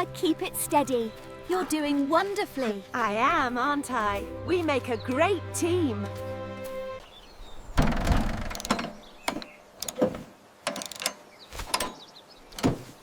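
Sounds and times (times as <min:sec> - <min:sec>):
mechanical clicks and clatters: 0:07.8 - 0:12.0.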